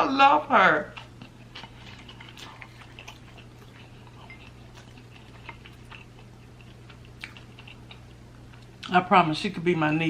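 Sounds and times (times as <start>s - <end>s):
steady low hum: 0.0s - 10.0s
quiet chewing: 0.9s - 8.9s.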